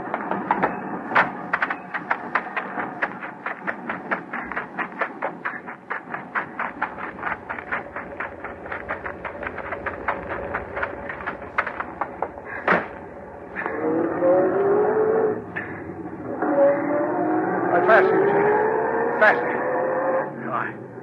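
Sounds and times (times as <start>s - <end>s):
train wheels clicking over rail joints: 0.0s - 16.3s
steady hum: 0.0s - 18.1s.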